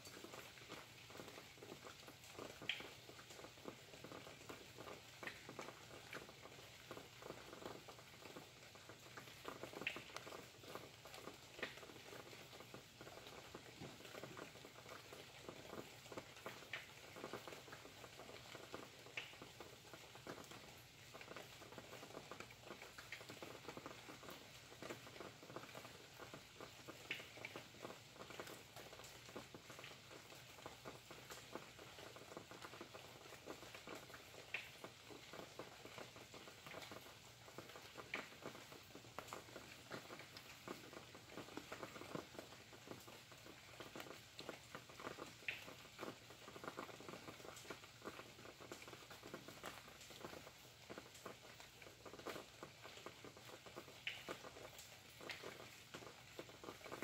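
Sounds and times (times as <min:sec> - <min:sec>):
faint rain pattering: 0:00.0 - 0:57.0.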